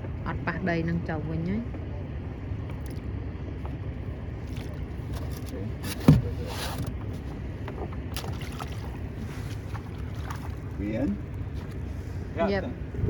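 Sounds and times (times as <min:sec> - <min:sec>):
boat engine rumbling: 0:00.0 - 0:13.0.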